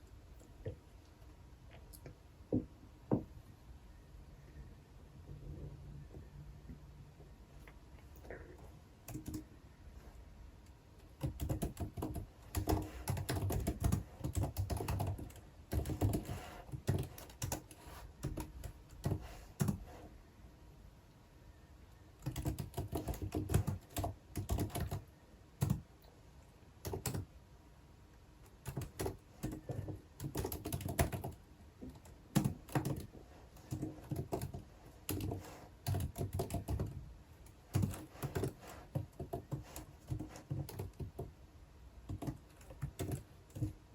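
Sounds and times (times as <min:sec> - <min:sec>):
typing on computer keyboard: 0:09.0 - 0:09.5, 0:11.0 - 0:19.8, 0:22.2 - 0:25.9, 0:26.8 - 0:27.3, 0:28.4 - 0:41.3, 0:42.1 - 0:43.8.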